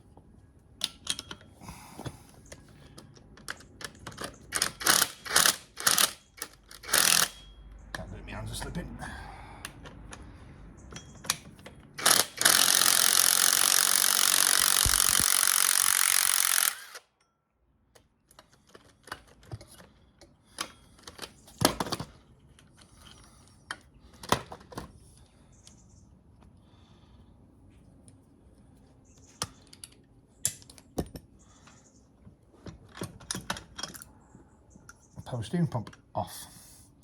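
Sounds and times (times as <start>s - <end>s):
power tool running: 6.8s - 7.3s, 12.0s - 17.0s.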